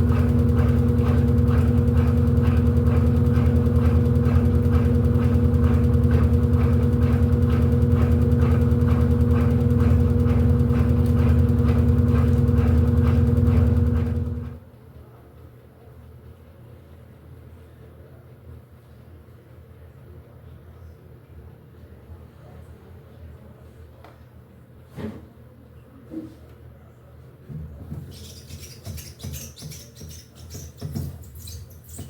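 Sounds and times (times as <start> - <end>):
washing machine running: 0.0 - 14.7, 28.2 - 32.0.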